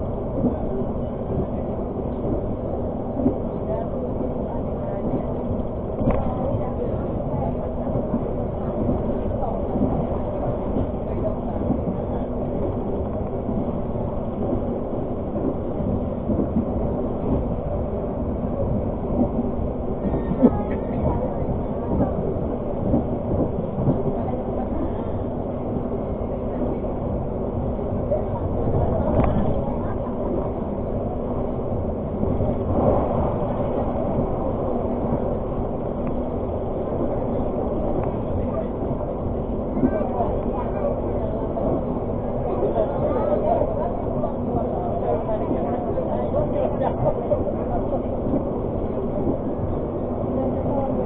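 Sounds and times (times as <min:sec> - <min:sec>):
low steady hum: 0:00.0 - 0:51.0
train wheels rumbling on rail: 0:00.0 - 0:51.0.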